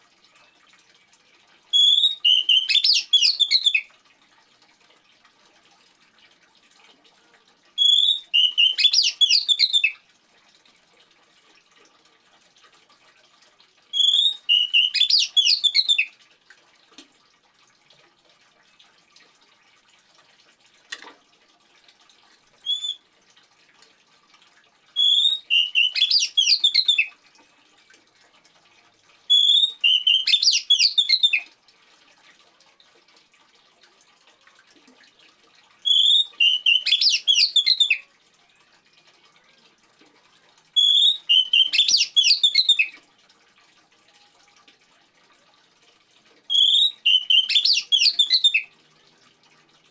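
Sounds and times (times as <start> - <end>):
faint trickle of water: 0.0 - 49.9
bird singing: 1.8 - 3.8, 7.8 - 10.0, 14.0 - 16.1, 22.7 - 23.0, 25.0 - 27.1, 29.3 - 31.4, 35.9 - 38.0, 40.8 - 42.9, 46.5 - 48.6.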